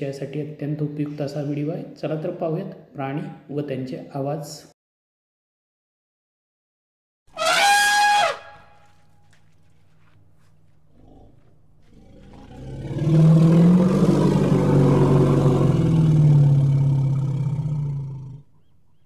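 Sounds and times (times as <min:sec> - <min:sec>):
long low animal call: 0:07.4 - 0:08.9, 0:10.8 - 0:19.0.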